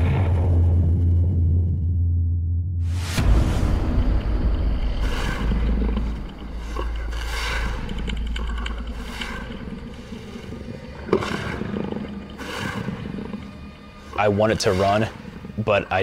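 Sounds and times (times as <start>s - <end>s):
heavy low rumble: 0.0s - 16.0s
deep guttural creature growls: 3.2s - 16.0s.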